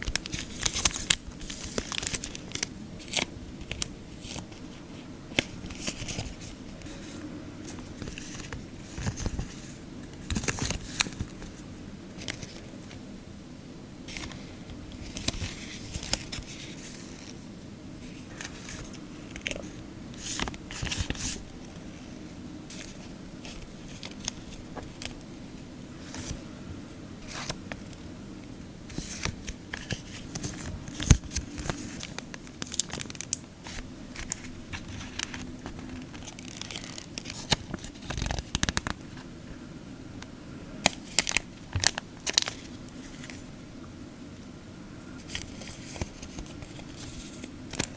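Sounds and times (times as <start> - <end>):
plastic packets crinkling: 0.0 - 4.7, 5.4 - 11.6, 28.9 - 39.1, 40.8 - 43.4
paper rustling: 0.0 - 11.6, 12.2 - 13.0, 14.1 - 25.2, 25.9 - 26.4, 27.2 - 28.0, 28.9 - 39.2, 40.8 - 43.5, 45.2 - 47.9.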